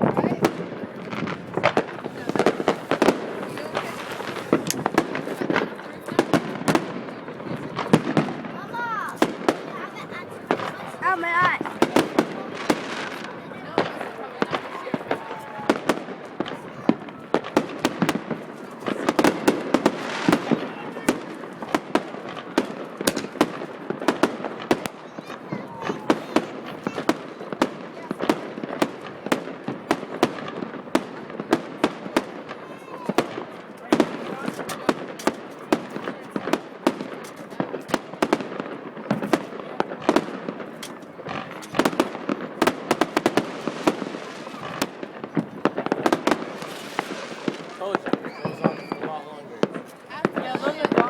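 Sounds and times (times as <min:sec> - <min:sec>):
fireworks hiss: 0:00.0 - 0:07.0, 0:40.6 - 0:51.0
fireworks bangs and crackles: 0:00.0 - 0:51.0.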